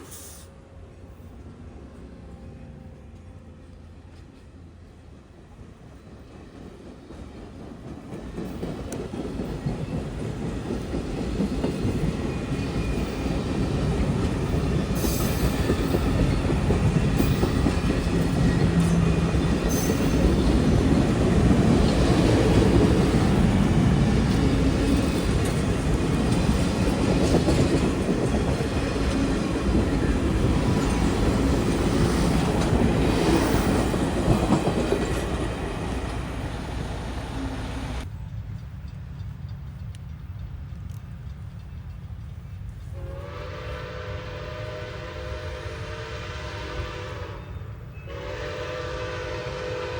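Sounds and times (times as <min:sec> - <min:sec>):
freight train wheels clicking: 0:06.1 - 0:43.0.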